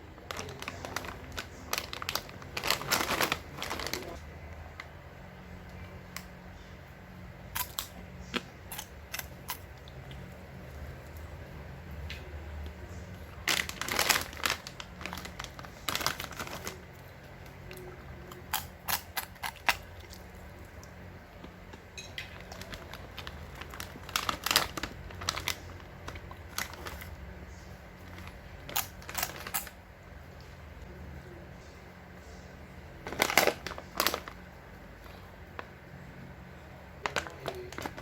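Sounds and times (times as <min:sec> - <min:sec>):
plastic packaging crinkling: 0:00.0 - 0:05.0, 0:12.8 - 0:29.9, 0:33.0 - 0:35.7, 0:37.0 - 0:38.0.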